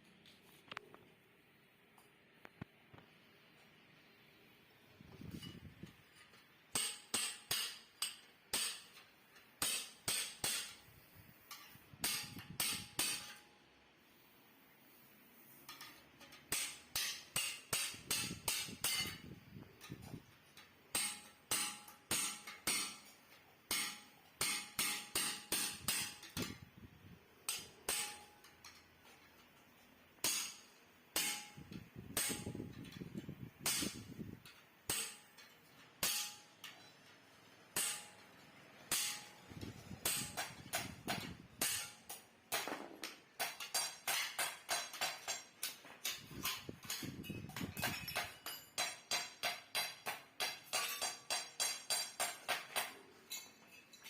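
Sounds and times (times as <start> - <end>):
hammer striking metal: 6.7 - 9.0, 9.6 - 10.9, 11.5 - 13.5, 15.7 - 20.0, 20.9 - 26.6, 27.4 - 28.8, 30.2 - 33.0, 33.6 - 36.9, 37.7 - 53.5.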